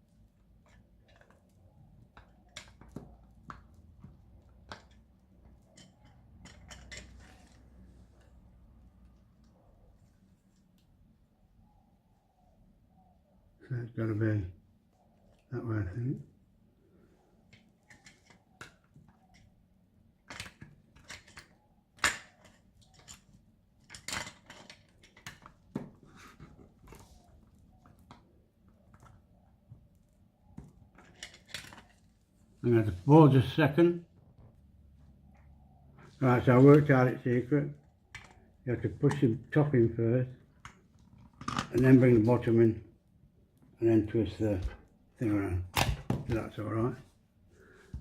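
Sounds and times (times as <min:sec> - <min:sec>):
plastic parts clicking and scraping: 0:00.6 - 0:08.4, 0:17.5 - 0:19.5, 0:20.2 - 0:32.4, 0:40.4 - 0:42.2.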